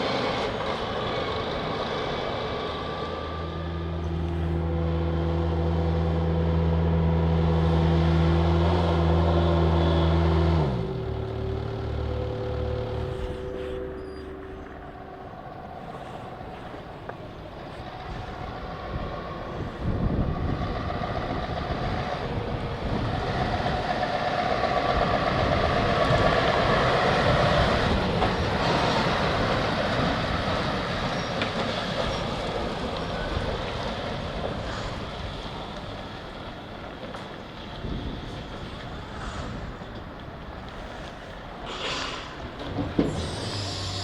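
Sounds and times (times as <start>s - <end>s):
heavy truck driving past: 0.0s - 44.0s
rattling truck load: 40.9s - 44.0s.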